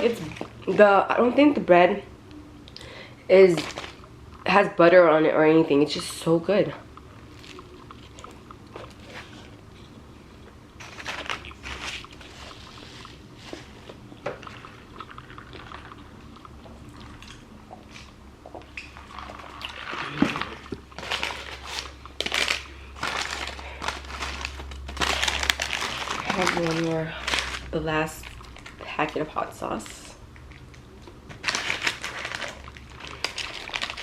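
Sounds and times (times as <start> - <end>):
chewing sandwich: 7.0 - 26.2
crisp crunches: 10.8 - 17.2, 18.8 - 29.1, 31.3 - 34.0.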